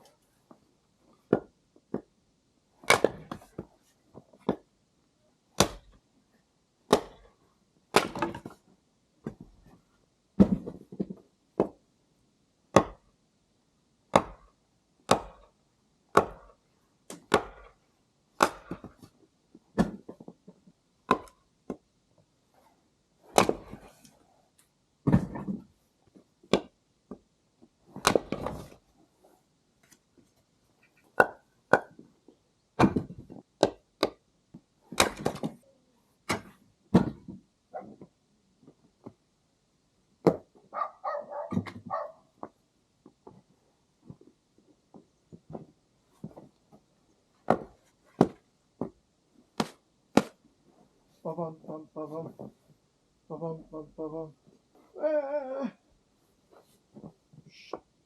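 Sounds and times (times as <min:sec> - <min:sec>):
axe chopping firewood: 0:02.8 - 0:03.6, 0:05.6 - 0:06.0, 0:06.9 - 0:07.3, 0:07.9 - 0:08.5, 0:10.4 - 0:11.8, 0:12.7 - 0:13.1, 0:14.1 - 0:17.8, 0:18.4 - 0:19.1, 0:19.7 - 0:20.2, 0:21.1 - 0:21.8, 0:23.3 - 0:23.9, 0:26.5 - 0:27.2, 0:28.0 - 0:28.7, 0:31.2 - 0:32.0, 0:32.8 - 0:34.2, 0:34.9 - 0:35.6, 0:36.3 - 0:37.4, 0:40.2 - 0:40.5, 0:47.4 - 0:48.4, 0:49.6 - 0:50.4.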